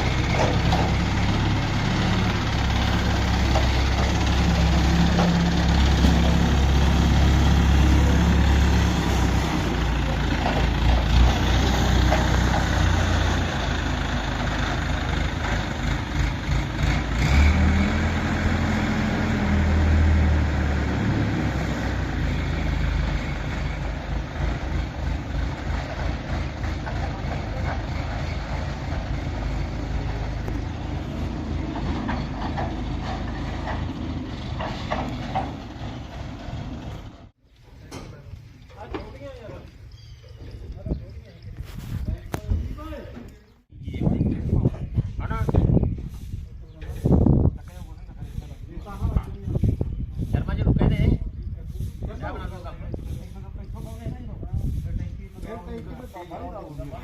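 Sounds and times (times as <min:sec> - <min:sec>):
diesel engine running: 0:00.0 - 0:37.4.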